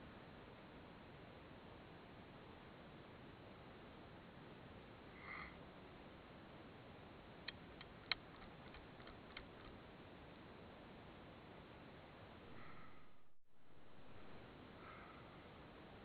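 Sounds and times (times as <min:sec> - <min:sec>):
faint steady hiss: 0:00.0 - 0:16.0
sharp small clicks: 0:07.4 - 0:09.8.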